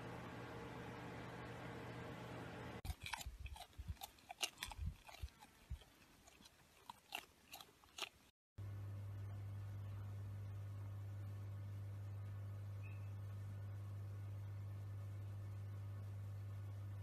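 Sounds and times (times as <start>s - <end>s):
faint steady hum: 0.0s - 17.0s
alpaca chewing: 2.9s - 8.3s.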